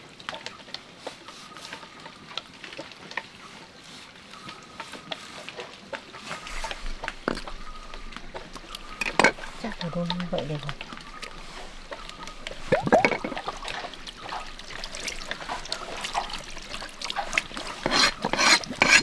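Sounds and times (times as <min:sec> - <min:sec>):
utensils clicking on cookware: 0:17.5 - 0:19.0.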